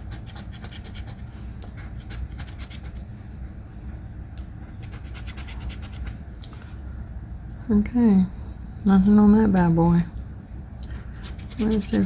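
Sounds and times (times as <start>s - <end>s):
lottery ticket being scratched: 11.2s - 12.0s.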